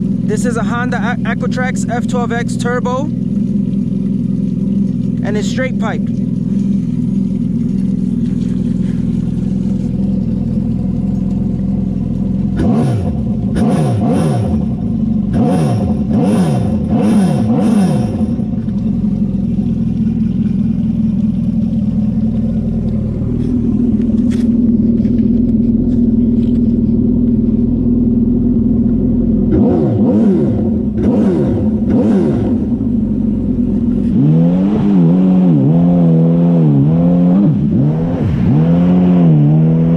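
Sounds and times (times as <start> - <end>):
jet ski engine idling and revving: 0.0 - 39.9.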